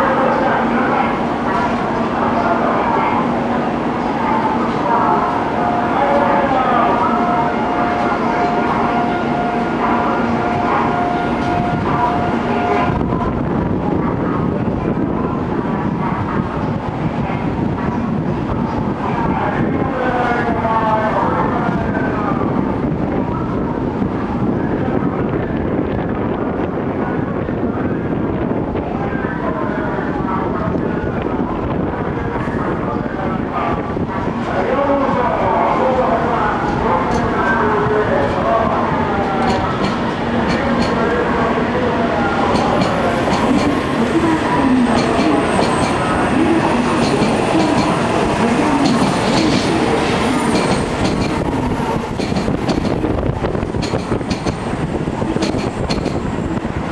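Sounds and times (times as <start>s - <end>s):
train rumbling along track: 0.0s - 56.9s
train wheels clicking on rail joints: 47.0s - 48.0s, 48.8s - 49.8s, 50.5s - 51.4s, 52.1s - 53.0s, 53.7s - 54.6s, 55.4s - 56.2s.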